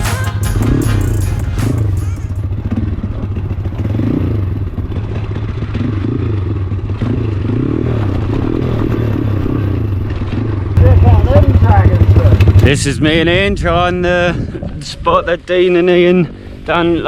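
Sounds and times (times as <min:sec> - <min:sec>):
pit bike engine revving: 0:00.0 - 0:13.6.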